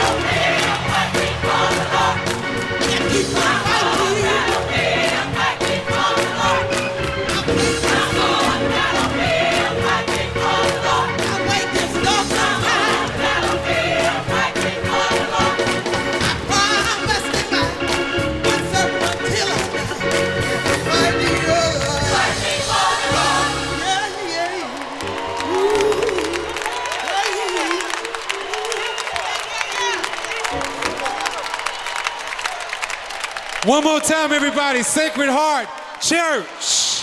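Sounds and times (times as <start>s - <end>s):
gospel choir with band: 0.0s - 33.4s
crowd noise: 0.0s - 37.0s.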